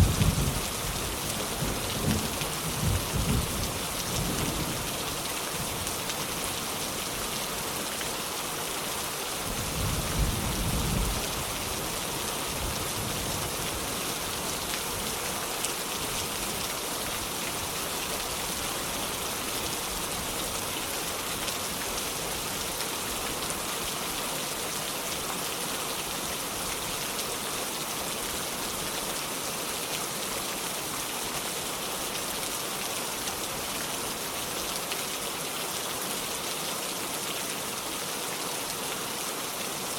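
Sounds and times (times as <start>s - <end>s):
low rumble of thunder: 0.0s - 0.8s
heavy rain falling: 0.0s - 39.9s.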